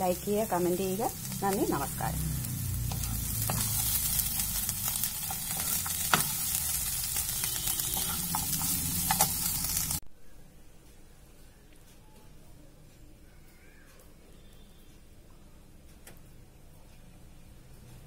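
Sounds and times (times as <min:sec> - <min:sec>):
food sizzling in oil: 0:00.0 - 0:10.0
spoon scraping and knocking a pan: 0:02.9 - 0:04.4, 0:05.1 - 0:09.7.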